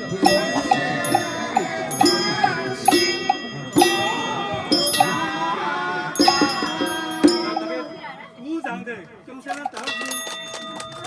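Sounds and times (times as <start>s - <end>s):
metal bell ringing: 0.0s - 5.6s, 6.2s - 8.6s, 9.6s - 11.0s
wavering melody: 0.0s - 8.6s.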